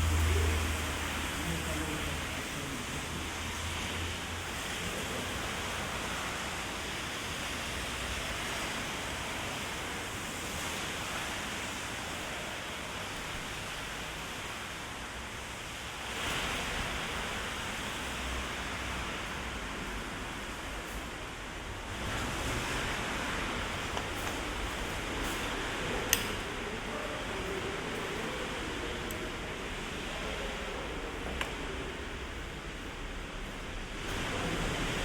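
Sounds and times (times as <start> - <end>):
heavy rain on street: 0.0 - 35.0.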